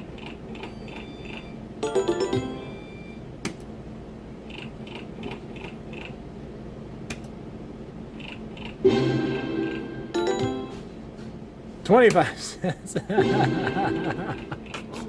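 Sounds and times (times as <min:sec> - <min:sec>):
slot machine tones: 0:00.7 - 0:03.2, 0:08.8 - 0:10.9.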